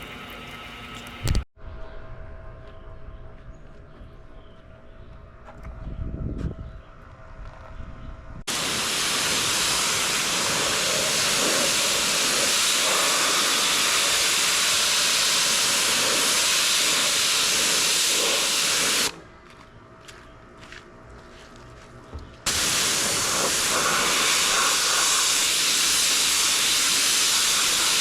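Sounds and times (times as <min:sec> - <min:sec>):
pressure washer spraying water: 0:08.5 - 0:19.2, 0:22.5 - 0:28.0.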